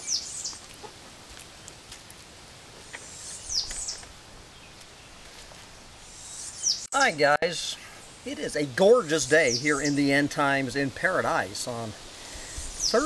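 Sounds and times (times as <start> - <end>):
songbird high chirps: 0.0 - 0.6, 2.9 - 5.4, 6.0 - 7.2, 8.2 - 10.3, 12.3 - 13.0
faint background hiss: 0.0 - 13.0.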